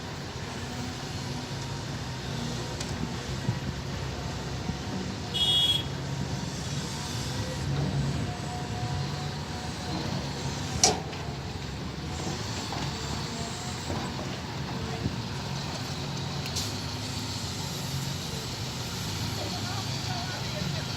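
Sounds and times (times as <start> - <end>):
diesel machinery rumbling: 0.0 - 20.9.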